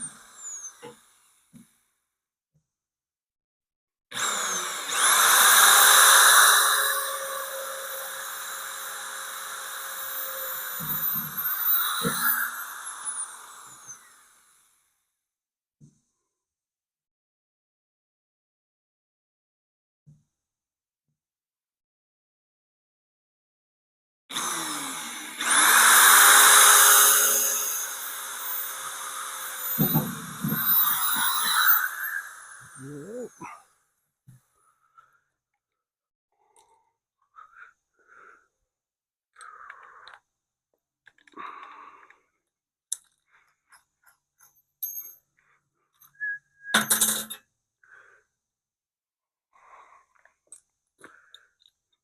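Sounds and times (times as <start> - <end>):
electric drill whining: 0.0 - 1.1, 4.2 - 14.5, 24.3 - 33.3.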